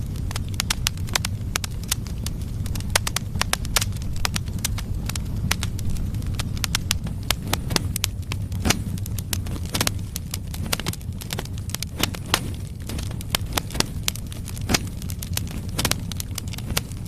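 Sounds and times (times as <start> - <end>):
firewood crackling and popping: 0.0 - 17.0
low rumble of flames: 0.0 - 17.0.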